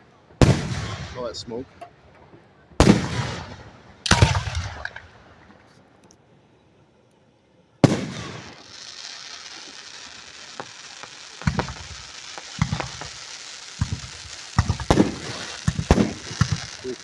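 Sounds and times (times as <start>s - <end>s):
crackling firework hiss: 0.0s - 17.0s
firework shell bangs: 10.6s - 13.2s, 13.8s - 17.0s.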